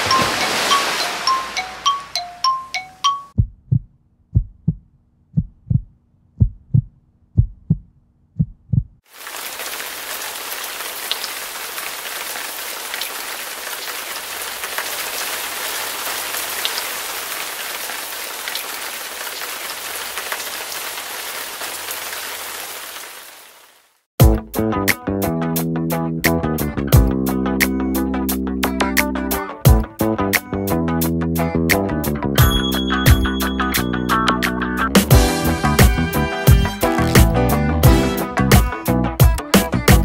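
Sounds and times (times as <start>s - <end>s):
bell-like dings: 0.0s - 3.4s, 32.4s - 34.7s
low thuds: 3.4s - 9.0s.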